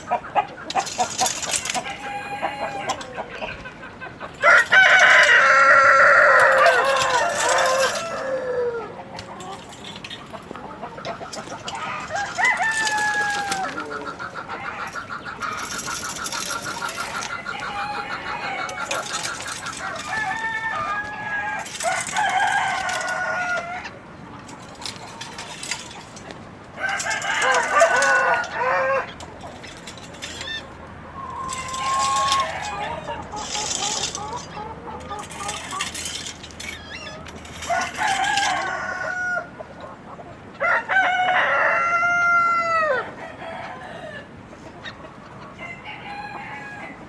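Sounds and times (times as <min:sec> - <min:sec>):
chickens clucking and calling: 0:00.0 - 0:47.0
rooster crowing: 0:01.7 - 0:03.2, 0:04.4 - 0:09.0, 0:11.8 - 0:15.0, 0:16.9 - 0:23.9, 0:26.8 - 0:29.2, 0:37.6 - 0:39.6, 0:40.6 - 0:44.3, 0:45.6 - 0:47.0.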